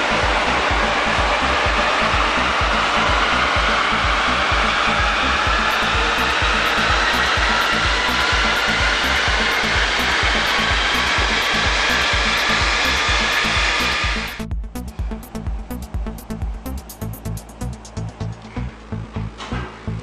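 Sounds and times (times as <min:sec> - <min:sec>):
car engine running hard on dynamometer: 0:00.0 - 0:14.4.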